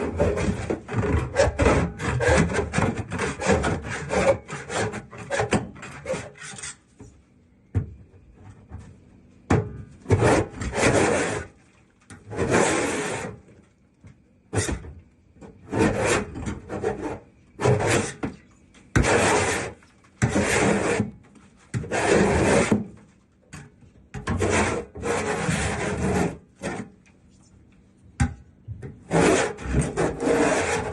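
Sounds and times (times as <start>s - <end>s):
tool scraping grease off metal: 15.7s - 18.3s, 18.9s - 21.1s.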